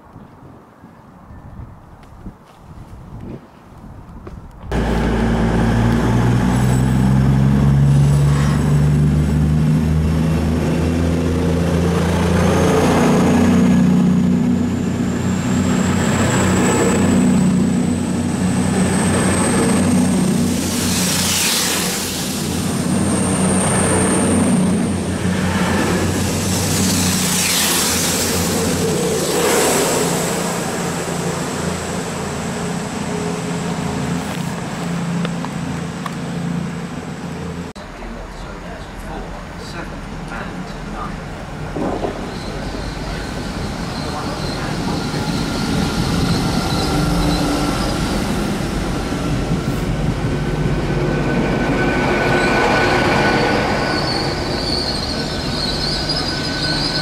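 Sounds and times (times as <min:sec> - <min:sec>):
low train engine hum: 0:03.9 - 0:57.0
rushing noise of passing carriages: 0:04.7 - 0:57.0.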